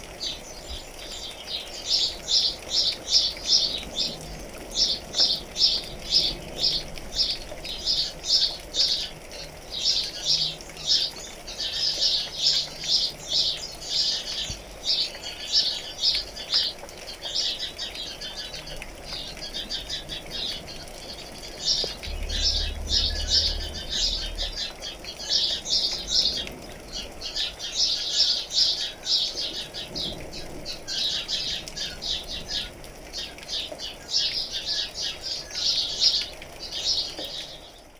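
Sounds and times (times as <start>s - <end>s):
soft hiss of rain: 0.0s - 37.9s
birds chirping: 0.2s - 37.9s
low rumble: 21.3s - 26.7s.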